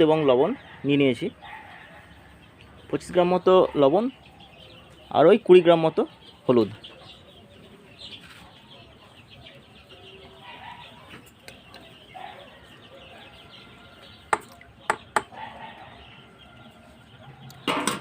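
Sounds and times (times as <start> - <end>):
chicks peeping and chirping: 0.0 - 18.0
sharp knocks: 14.3 - 15.3.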